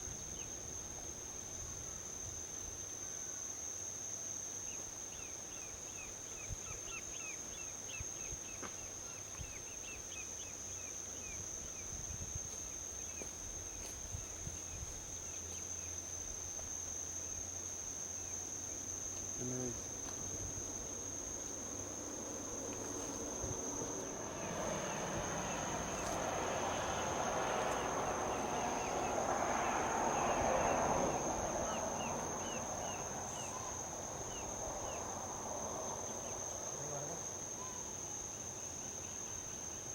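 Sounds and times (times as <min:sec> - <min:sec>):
insects droning: 0:00.0 - 0:39.9
quick insect chirps: 0:00.0 - 0:39.9
vehicle passing on highway: 0:19.8 - 0:37.5.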